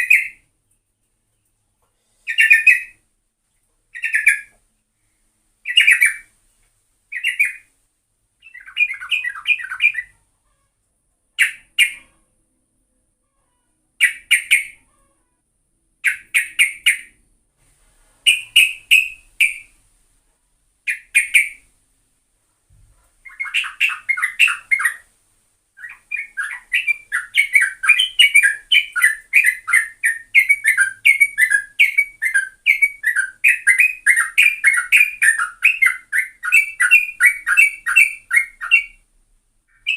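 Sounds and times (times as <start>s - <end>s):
bulbul singing: 3.9s - 4.5s, 18.3s - 19.7s, 23.2s - 25.1s, 25.8s - 39.0s.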